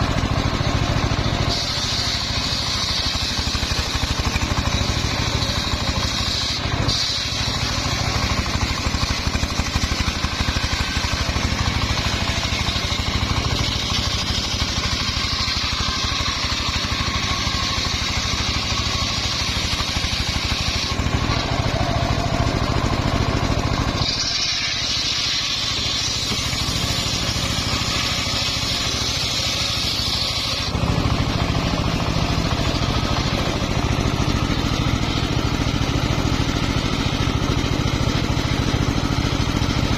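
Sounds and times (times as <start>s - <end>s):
saw blade hissing through log: 0.0s - 39.9s
sawmill engine pulsing: 0.0s - 39.9s.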